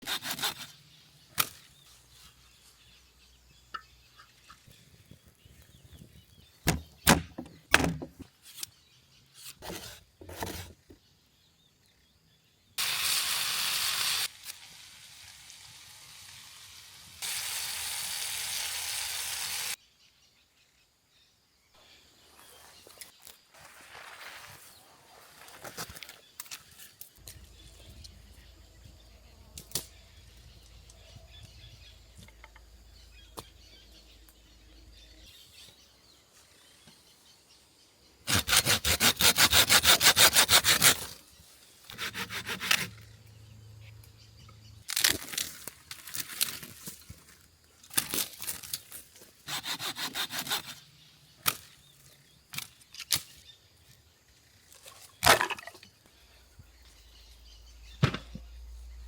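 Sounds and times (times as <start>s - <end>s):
saw rasping through dry wood: 0.0s - 0.7s, 38.3s - 41.1s, 41.9s - 43.0s, 49.4s - 50.8s
wood cracking: 44.8s - 49.1s.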